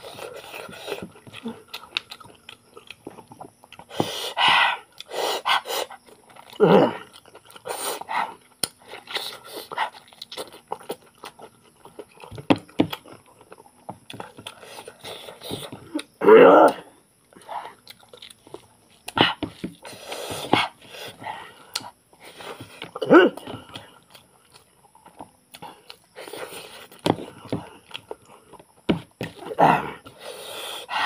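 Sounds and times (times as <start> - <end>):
man chewing and eating: 0.0 - 31.0.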